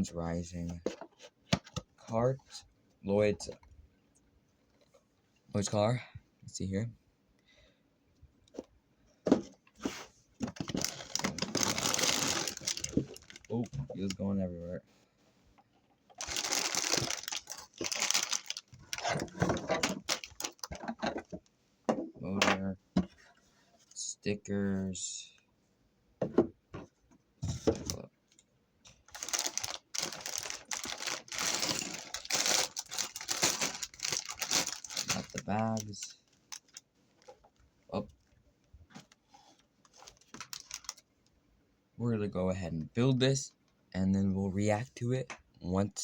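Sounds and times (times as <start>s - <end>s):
plastic pieces rattling in bags: 10.6s - 13.6s, 16.2s - 21.0s, 29.1s - 35.9s, 40.3s - 41.0s.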